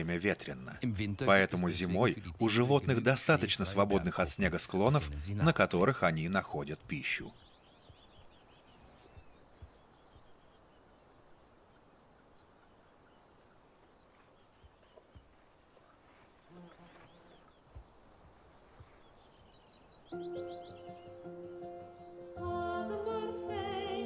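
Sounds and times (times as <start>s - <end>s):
small bird calling: 6.1s - 21.8s.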